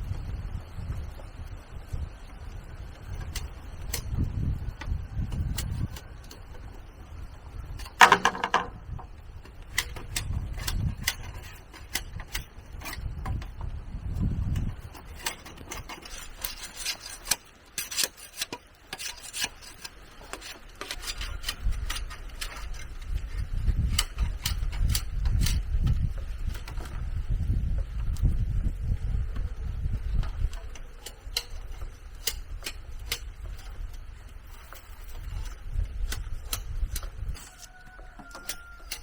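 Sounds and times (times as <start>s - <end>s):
wood clicks and knocks: 7.8s - 11.3s
rubbing and scraping wood: 7.8s - 27.2s.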